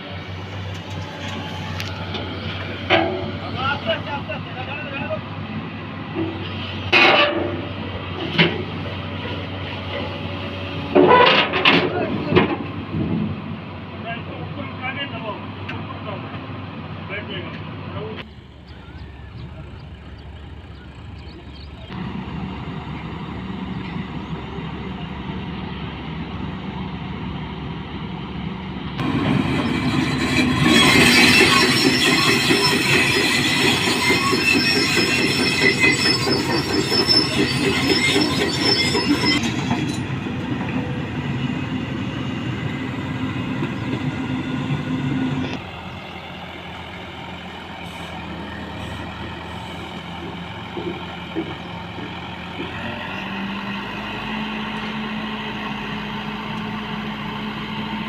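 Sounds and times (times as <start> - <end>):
diesel machinery running: 0.0 - 58.0
metallic squealing and grinding: 9.1 - 12.0, 29.0 - 40.9.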